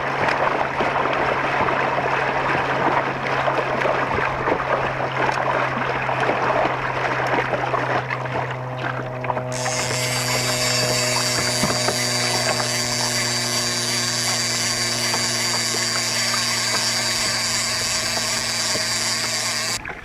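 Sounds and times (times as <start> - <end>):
faint reel clicks: 9.5 - 20.0
fishing reel drag whirring: 9.5 - 20.0.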